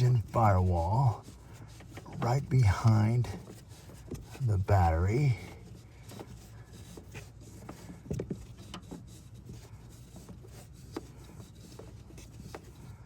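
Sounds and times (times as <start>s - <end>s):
plastic tubing scraping: 0.0s - 13.0s
light taps and knocks: 5.4s - 13.0s.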